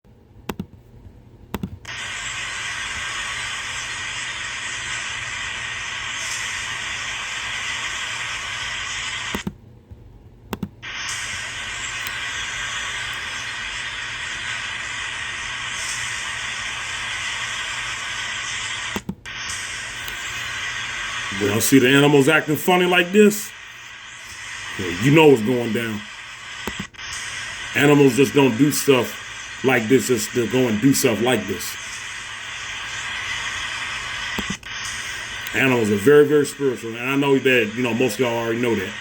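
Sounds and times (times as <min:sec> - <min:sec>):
clicks: 0:00.4 - 0:02.0, 0:09.3 - 0:10.8, 0:18.9 - 0:19.3, 0:26.6 - 0:27.3, 0:34.2 - 0:35.6.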